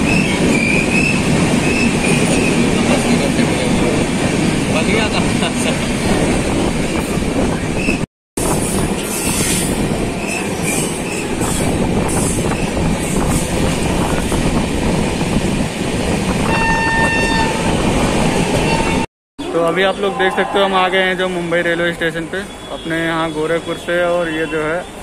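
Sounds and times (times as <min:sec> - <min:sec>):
train wheels rumbling on rail: 0:00.0 - 0:19.1
train horn: 0:16.4 - 0:17.8, 0:18.4 - 0:19.0.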